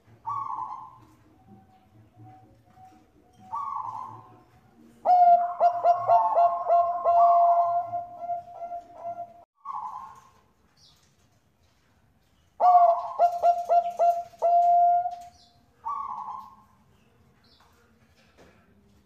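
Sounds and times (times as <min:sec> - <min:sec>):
dove cooing: 0:00.0 - 0:10.3, 0:12.6 - 0:16.8
dove song of stuttering notes: 0:00.0 - 0:11.2, 0:12.5 - 0:17.7.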